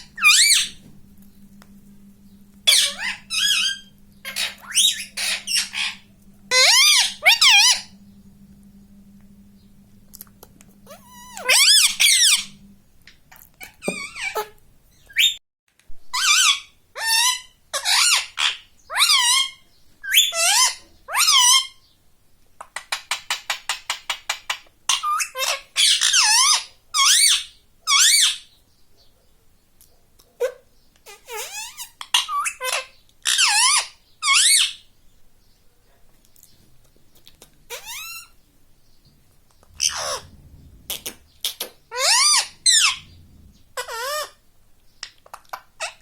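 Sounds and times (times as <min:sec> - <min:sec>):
parakeet clicking chatter: 0:00.0 - 0:00.8, 0:02.6 - 0:07.9
parakeet squawking: 0:00.0 - 0:00.9, 0:02.6 - 0:08.0, 0:10.8 - 0:12.6, 0:13.6 - 0:15.4, 0:30.4 - 0:34.8, 0:37.7 - 0:38.4, 0:39.8 - 0:43.2, 0:43.8 - 0:44.4.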